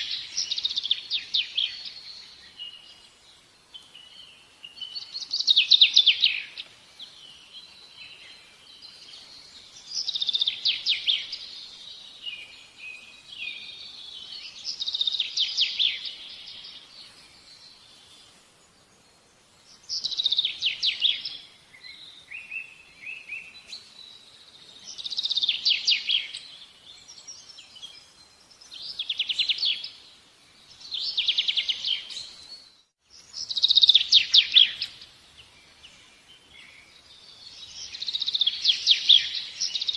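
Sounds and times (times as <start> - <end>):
songbird trilling: 33.2 - 35.0.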